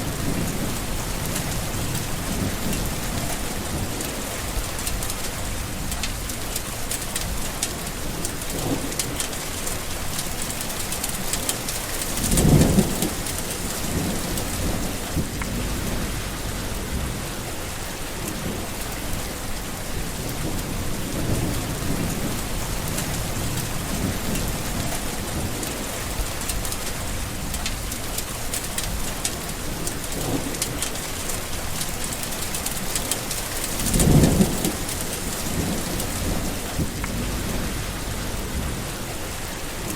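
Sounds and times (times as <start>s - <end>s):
thunder rumbling: 0.0s - 6.5s, 7.2s - 39.9s
heavy rain: 0.0s - 39.9s.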